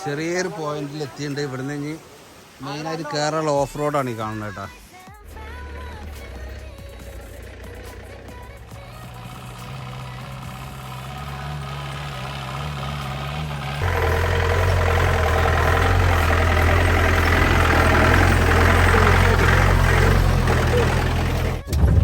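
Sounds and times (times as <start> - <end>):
jeep engine running: 5.1 - 22.0.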